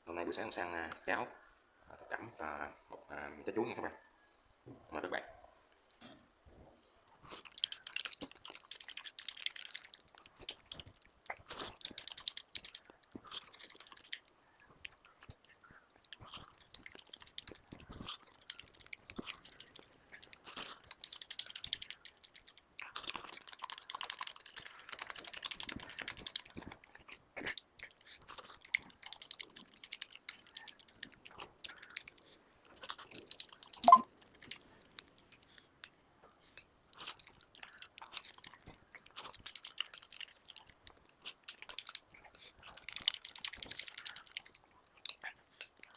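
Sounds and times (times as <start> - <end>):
person chewing soft food: 7.1 - 45.9
wet mouth clicks: 32.8 - 34.1.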